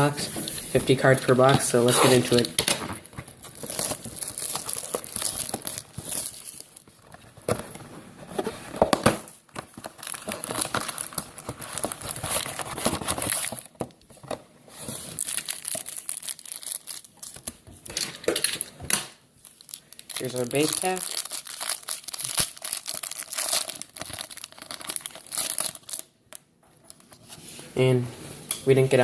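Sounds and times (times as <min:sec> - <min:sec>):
wrapping tearing and crinkling: 0:01.8 - 0:07.4, 0:09.6 - 0:13.9, 0:14.8 - 0:18.6, 0:19.4 - 0:26.2.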